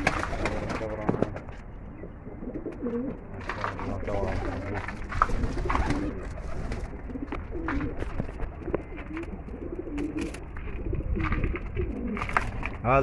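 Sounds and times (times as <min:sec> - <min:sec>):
pigeons cooing: 0:00.0 - 0:12.6.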